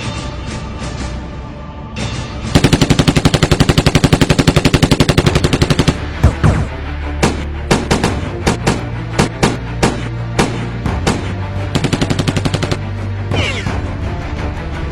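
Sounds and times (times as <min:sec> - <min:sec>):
background music: 0:00.0 - 0:14.9
automatic gunfire: 0:02.6 - 0:06.4, 0:07.2 - 0:12.8.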